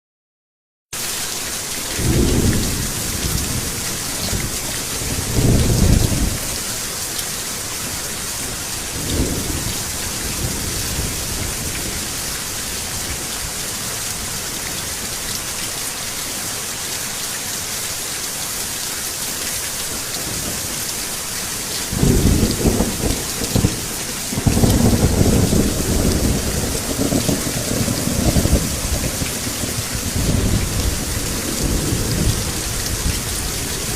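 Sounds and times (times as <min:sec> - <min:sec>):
steady rain: 0:01.0 - 0:33.9
rolling thunder: 0:02.0 - 0:06.6, 0:08.9 - 0:12.2, 0:21.9 - 0:33.9.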